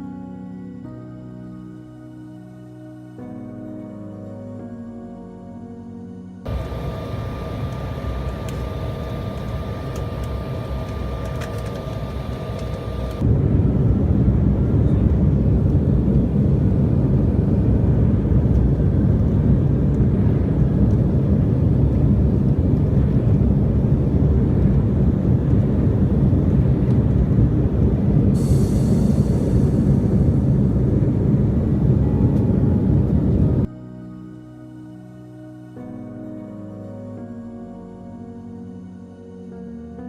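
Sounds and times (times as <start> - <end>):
airliner cabin engine hum: 6.4 - 33.7.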